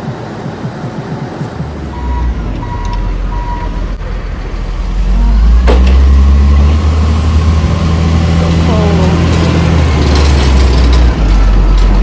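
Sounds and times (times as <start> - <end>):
truck engine running: 0.0 - 12.0
short reversing beeps: 0.4 - 4.0.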